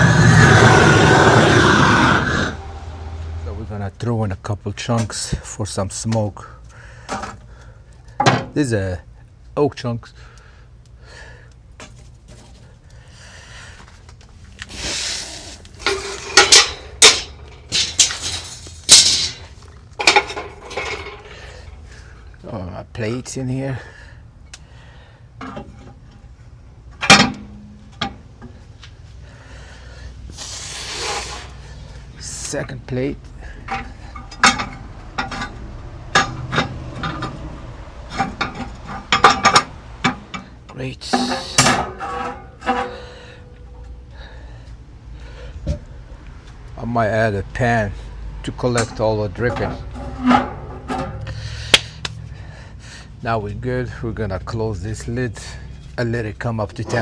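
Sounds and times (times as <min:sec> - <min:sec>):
metal grill parts scraping: 0:14.6 - 0:23.4, 0:25.4 - 0:46.2, 0:47.6 - 0:52.4, 0:54.4 - 0:57.0
sharp metal clanks: 0:15.8 - 0:21.8, 0:27.0 - 0:28.2, 0:33.5 - 0:44.2, 0:48.7 - 0:52.0.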